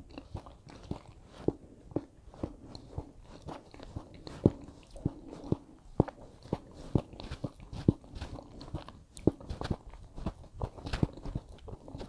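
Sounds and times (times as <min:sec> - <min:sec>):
moist mouth clicks: 0:00.0 - 0:12.0
person chewing food: 0:00.0 - 0:12.0.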